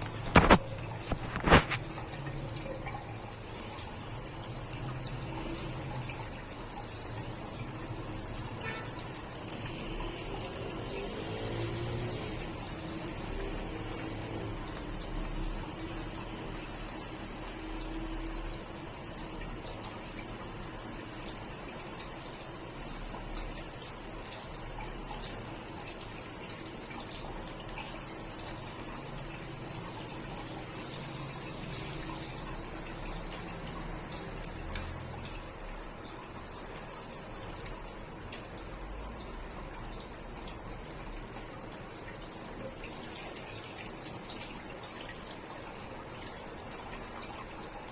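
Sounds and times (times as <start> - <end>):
water running: 0.0 - 47.9
small clicks and ticks: 33.0 - 35.4.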